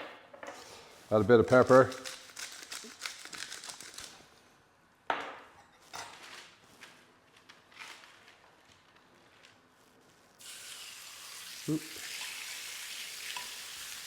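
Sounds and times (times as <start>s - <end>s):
light kitchen clatters: 5.1s - 7.0s.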